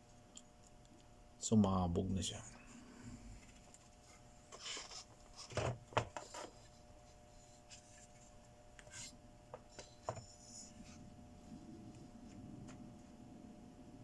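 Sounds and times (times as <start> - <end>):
faint steady hum: 0.0 - 14.0
scraping and rubbing: 4.5 - 5.6.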